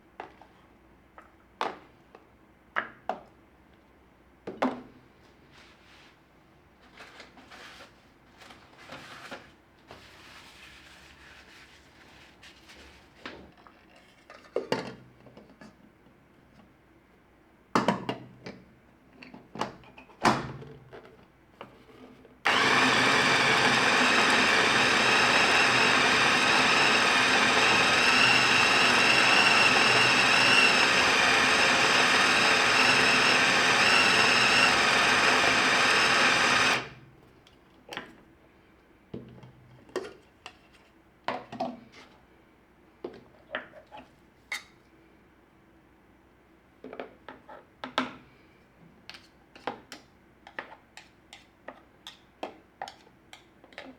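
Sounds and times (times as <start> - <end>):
kitchen appliance motor running: 22.5 - 37.0.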